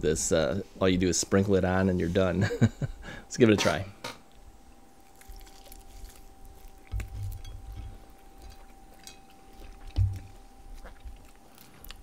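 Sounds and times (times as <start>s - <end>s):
person chewing: 5.0s - 12.0s
wet crackles: 5.0s - 12.0s.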